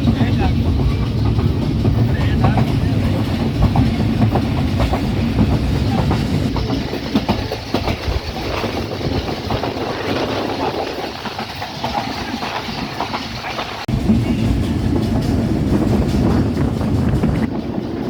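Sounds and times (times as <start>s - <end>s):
train rumbling on track: 0.0s - 18.0s
wheels clattering and rattling: 0.0s - 18.0s.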